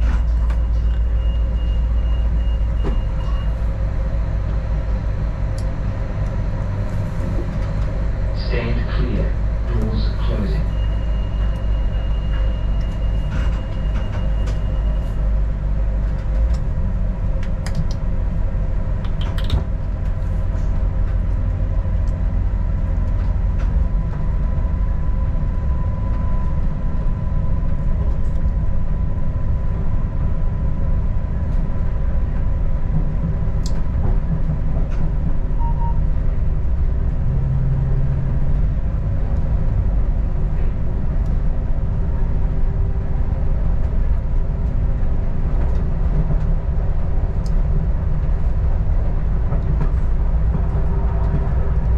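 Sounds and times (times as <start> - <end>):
railcar rumbling along track: 0.0 - 51.9.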